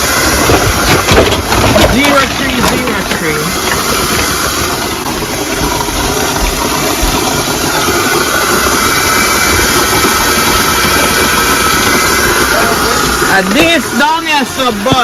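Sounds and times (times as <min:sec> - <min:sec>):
water spraying from burst pipe: 0:00.0 - 0:15.0.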